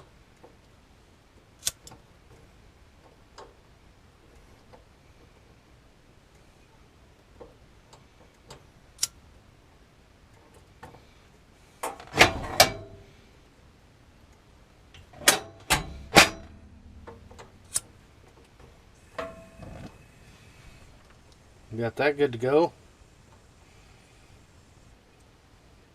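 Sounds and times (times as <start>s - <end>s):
knocks and clunks of handled things: 11.8s - 13.2s, 15.0s - 20.0s.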